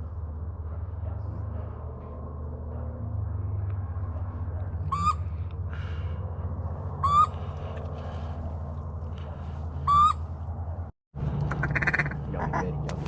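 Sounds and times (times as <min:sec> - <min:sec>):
steady low rumble: 0:00.0 - 0:13.0
nasal waterfowl calls: 0:04.9 - 0:05.2, 0:07.0 - 0:07.7, 0:09.9 - 0:10.2, 0:11.5 - 0:12.7.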